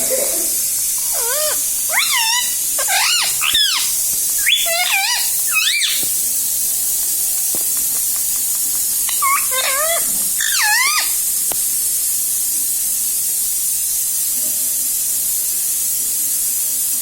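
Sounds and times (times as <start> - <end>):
steady hiss: 0.0 - 17.0
parakeet squeaky calls: 0.6 - 6.4, 7.2 - 11.3.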